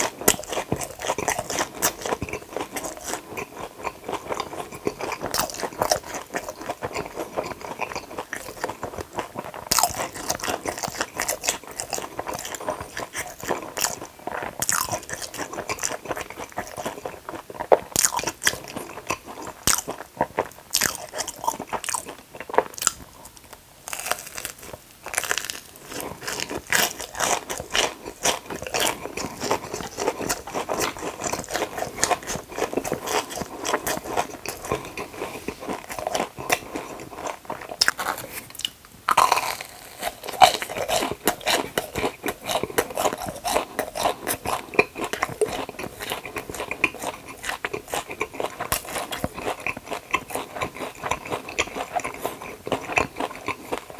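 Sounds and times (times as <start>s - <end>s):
crunchy food chewing: 0.0s - 53.9s.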